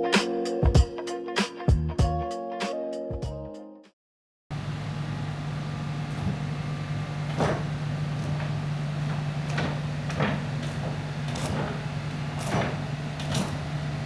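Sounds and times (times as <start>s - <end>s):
excavator diesel engine running: 4.5s - 14.0s
short knocks: 6.1s - 14.0s.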